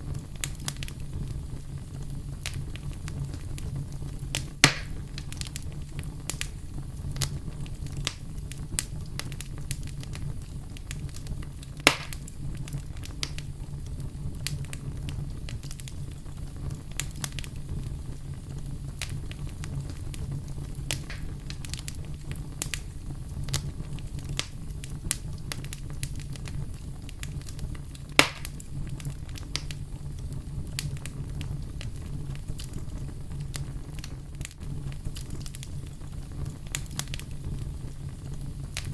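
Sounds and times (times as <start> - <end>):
fire snapping loudly: 0.0 - 38.9
wood fire crackling: 0.0 - 38.9.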